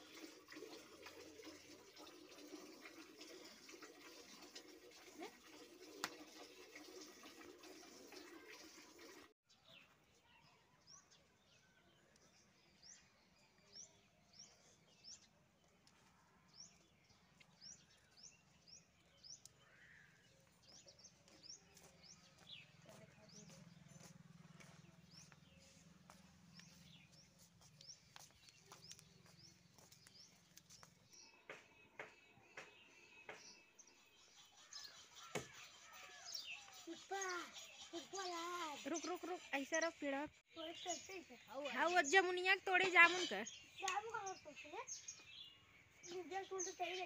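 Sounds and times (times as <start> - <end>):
faint small bird chirping: 9.5 - 39.9.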